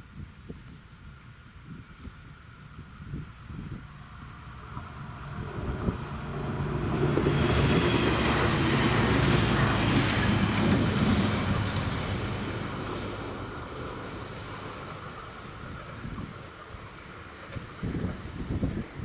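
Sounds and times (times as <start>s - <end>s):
passenger train passing: 3.8s - 19.0s.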